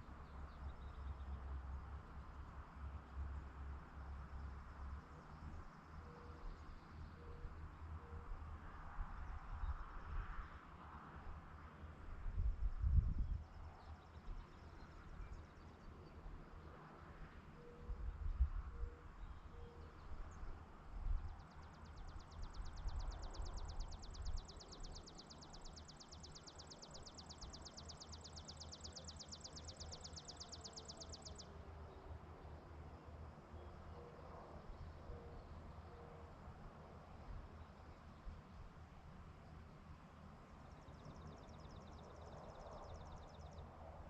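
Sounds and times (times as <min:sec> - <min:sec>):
wind buffeting microphone: 0:12.4 - 0:13.5.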